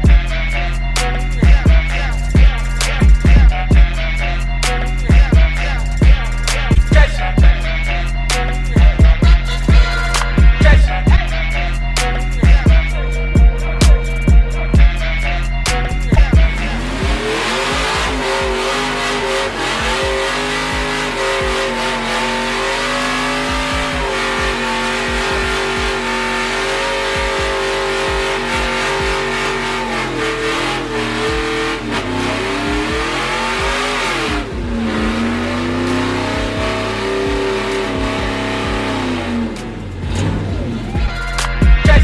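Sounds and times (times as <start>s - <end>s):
engine at high revs: 0.0s - 42.0s
tyres spinning hiss: 16.4s - 40.9s.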